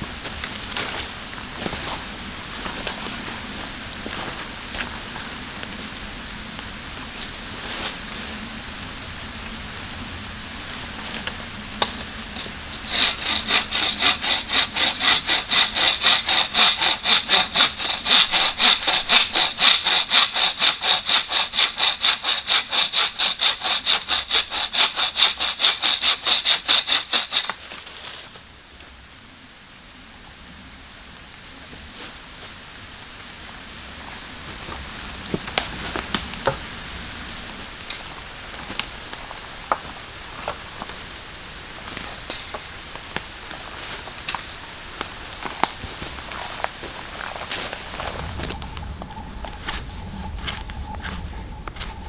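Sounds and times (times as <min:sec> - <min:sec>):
hand saw cutting wood: 0:11.0 - 0:27.8.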